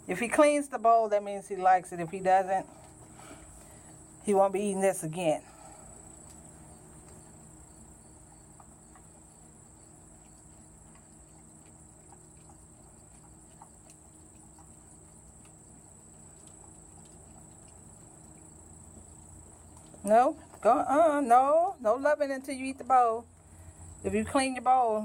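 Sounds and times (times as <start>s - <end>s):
dog licking and eating: 5.9s - 21.2s.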